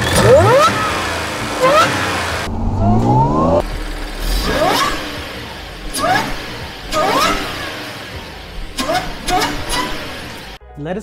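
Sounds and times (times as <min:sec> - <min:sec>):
car engine revving: 0:00.0 - 0:10.6
supercharger whine: 0:00.0 - 0:10.6.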